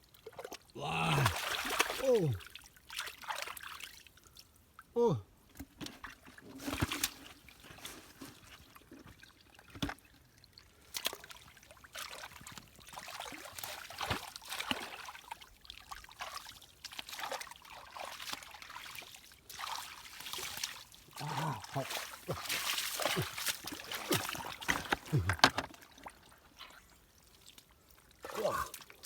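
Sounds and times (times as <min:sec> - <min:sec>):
muddy water splashing: 0:00.3 - 0:03.8, 0:10.9 - 0:29.0.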